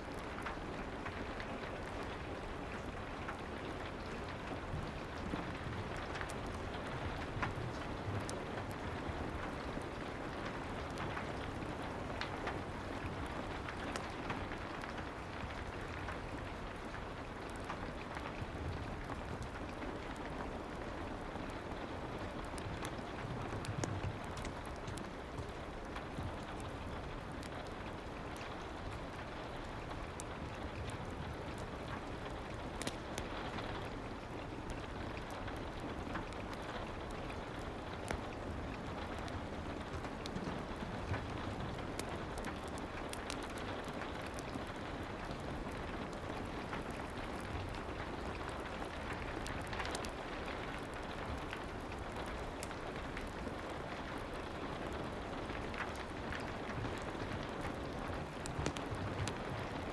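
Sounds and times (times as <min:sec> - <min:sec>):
fireplace ticks and pops: 0:22.5 - 0:27.5, 0:55.7 - 0:59.8.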